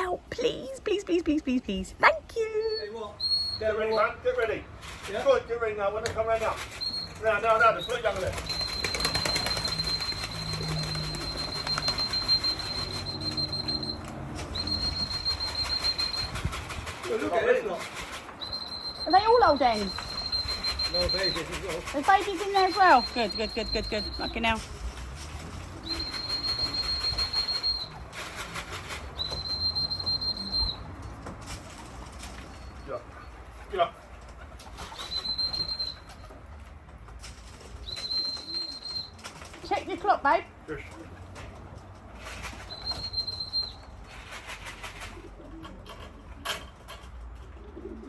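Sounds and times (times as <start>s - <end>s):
high steady beep: 8.5s - 16.4s, 18.5s - 21.4s, 22.3s - 24.6s
pigeons cooing: 44.5s - 46.6s, 47.4s - 48.0s.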